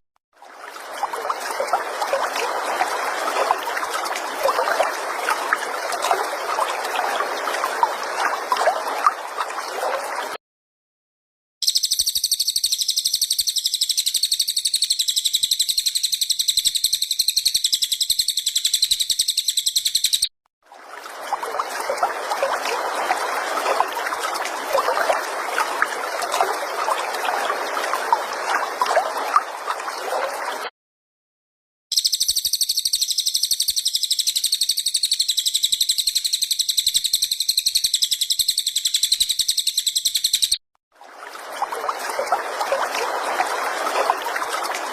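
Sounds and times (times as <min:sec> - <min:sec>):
rough gurgling sound: 0:00.4 - 0:10.4, 0:20.6 - 0:30.7, 0:40.9 - 0:44.9
bird trilling: 0:11.6 - 0:20.3.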